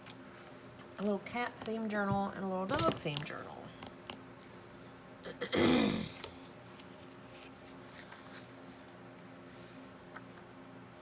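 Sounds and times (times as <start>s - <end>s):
faint steady hum: 0.0s - 11.0s
woman clearing throat: 5.2s - 6.2s.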